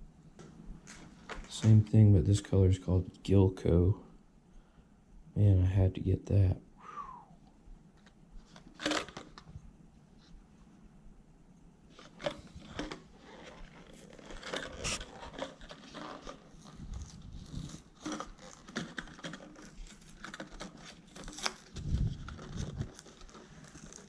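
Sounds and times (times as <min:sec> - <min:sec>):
plastic packaging crinkling: 0:08.0 - 0:09.5, 0:11.9 - 0:24.0.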